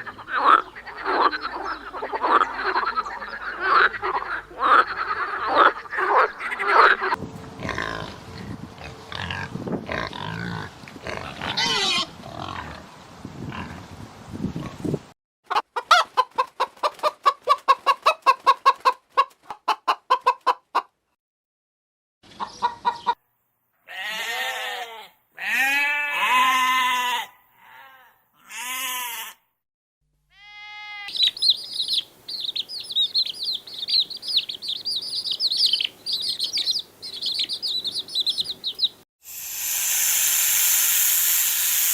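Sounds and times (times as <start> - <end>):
small birds chirping: 0.0 - 6.9, 31.1 - 39.0
fowl clucking: 0.0 - 7.2, 15.5 - 20.9, 22.4 - 23.2.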